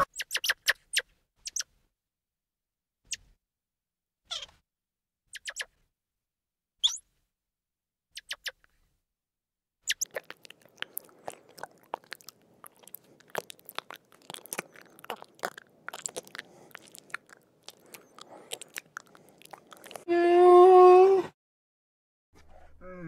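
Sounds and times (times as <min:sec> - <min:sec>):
crunching clicks: 0:09.9 - 0:20.0.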